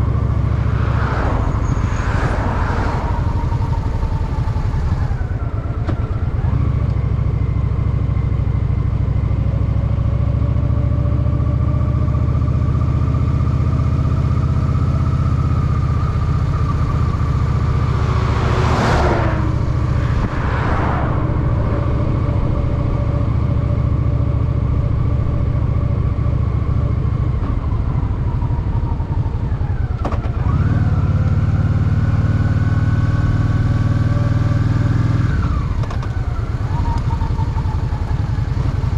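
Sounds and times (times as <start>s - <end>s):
loud rush of noise: 0.0s - 5.2s, 16.5s - 24.7s
motorcycle engine running: 3.1s - 18.6s, 21.4s - 38.9s.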